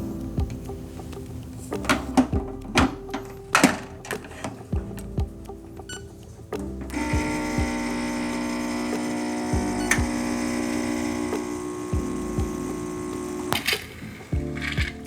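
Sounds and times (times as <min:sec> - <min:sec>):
espresso machine pump humming: 0:06.9 - 0:14.0.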